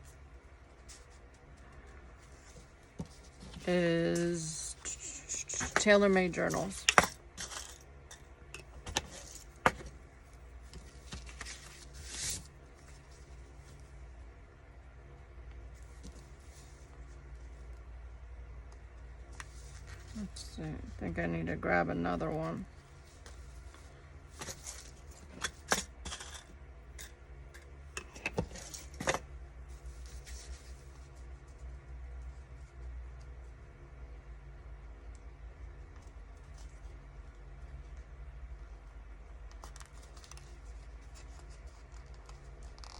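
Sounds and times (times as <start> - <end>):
faint low hum: 0.0 - 42.9
paper rustle: 10.6 - 13.9.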